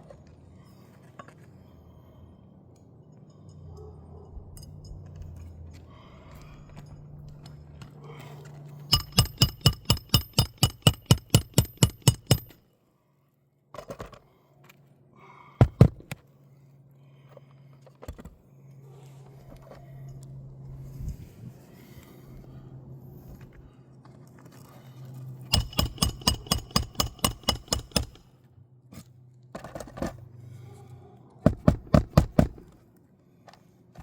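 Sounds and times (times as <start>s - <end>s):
hammer striking a nail: 8.9s - 12.6s, 25.5s - 28.2s, 31.5s - 32.6s.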